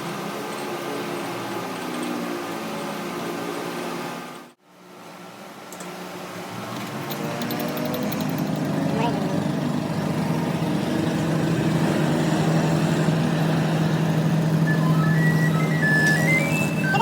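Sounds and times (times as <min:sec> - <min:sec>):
machine hum with held tones: 0:06.6 - 0:17.0.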